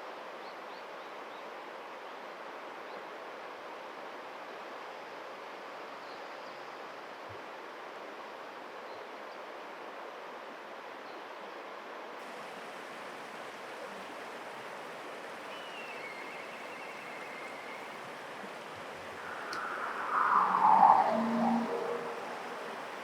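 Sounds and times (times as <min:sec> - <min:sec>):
outdoor noise haze: 0:12.2 - 0:23.0.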